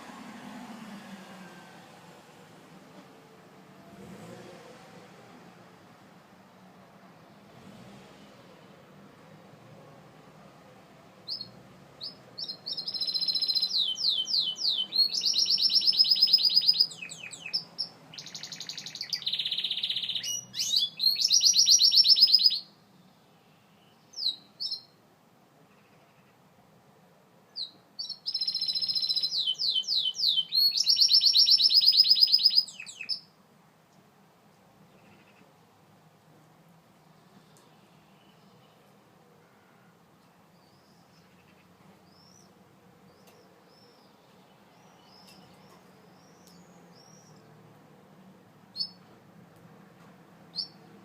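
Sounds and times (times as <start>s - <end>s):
canary singing trills and chirps: 11.2s - 22.8s, 23.8s - 25.0s, 27.5s - 33.3s, 40.5s - 47.6s, 48.7s - 49.1s, 50.4s - 51.0s.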